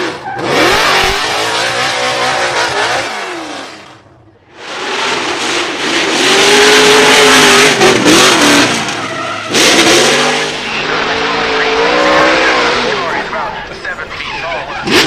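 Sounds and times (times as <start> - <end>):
car engine at high revs: 0.0 - 15.0
tyre squeal: 8.3 - 9.9.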